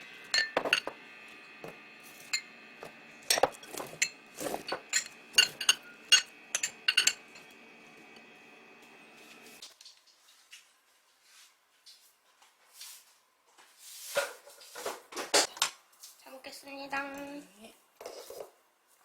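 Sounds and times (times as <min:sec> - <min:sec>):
dishes and cutlery clinking: 0:00.3 - 0:01.0, 0:03.2 - 0:07.6.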